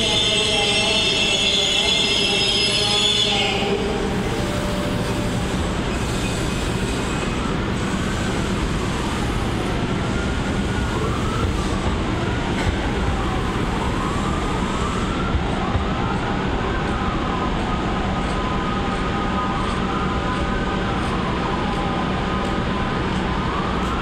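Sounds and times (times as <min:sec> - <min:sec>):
train rumble: 0:00.0 - 0:24.0
wavering wheel squeals: 0:04.3 - 0:08.3.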